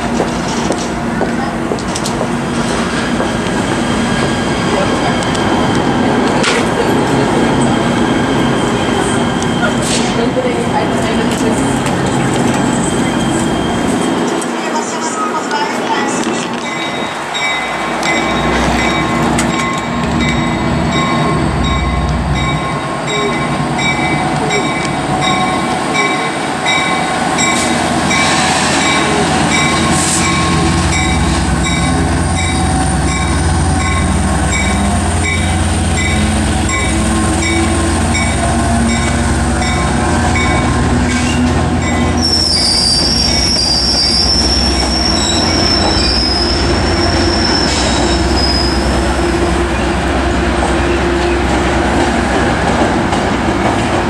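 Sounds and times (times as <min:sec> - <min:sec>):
diesel locomotive engine rumbling: 0:00.0 - 0:54.0
wheels squealing on rails: 0:02.8 - 0:52.9
train bell ringing: 0:16.5 - 0:40.9, 0:41.8 - 0:42.4.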